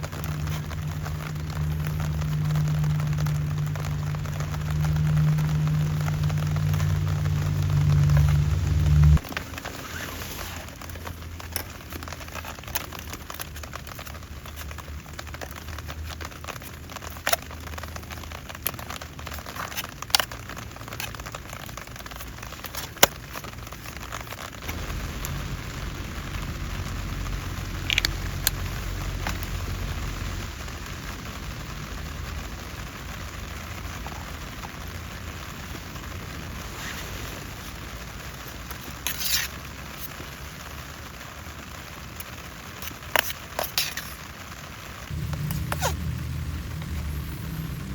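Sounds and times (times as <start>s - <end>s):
rain pattering on a surface: 0.0s - 47.9s
low rumble: 45.1s - 47.9s.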